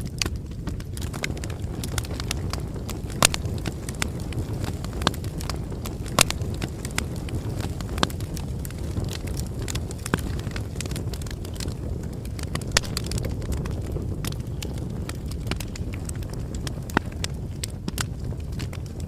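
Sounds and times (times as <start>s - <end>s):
wood bonfire crackling: 0.0s - 19.0s.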